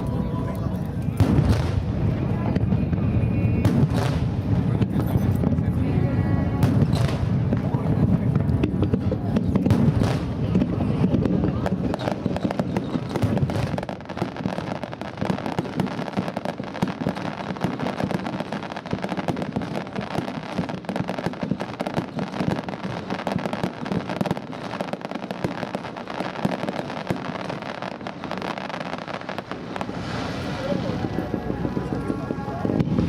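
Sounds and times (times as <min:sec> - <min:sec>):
fireworks crackling and banging: 0:00.0 - 0:33.0.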